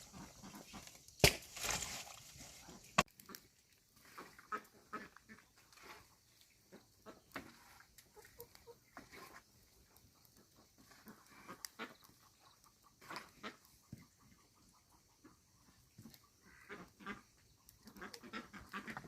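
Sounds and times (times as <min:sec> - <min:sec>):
farm livestock calls and grunts: 0:10.4 - 0:19.0.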